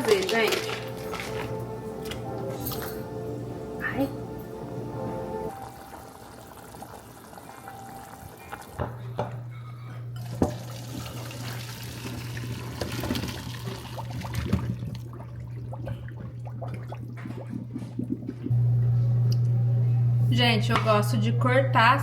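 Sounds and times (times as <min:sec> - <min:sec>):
low hum: 0:00.1 - 0:10.2, 0:14.2 - 0:21.9
tap running water into pot: 0:10.2 - 0:15.1.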